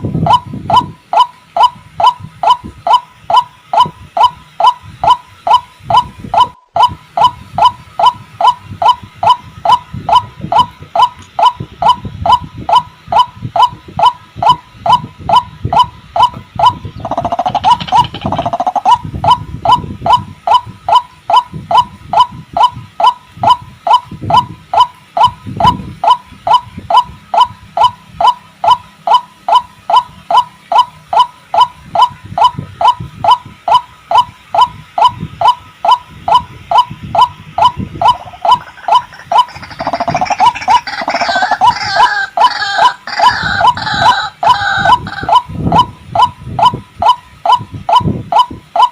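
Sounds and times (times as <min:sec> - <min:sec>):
waterhen calling: 0:16.3 - 0:19.0, 0:37.6 - 0:45.5
fast rattling chatter: 0:17.0 - 0:18.7, 0:38.1 - 0:42.3.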